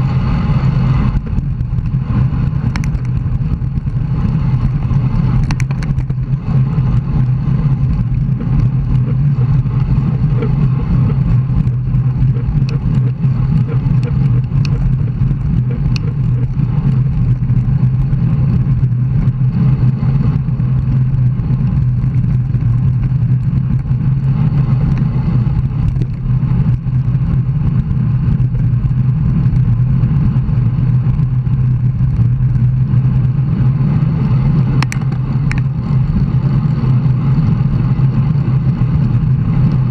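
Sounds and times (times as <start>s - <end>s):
road rumble: 0.0s - 39.9s
wind rush on microphone: 0.0s - 39.9s.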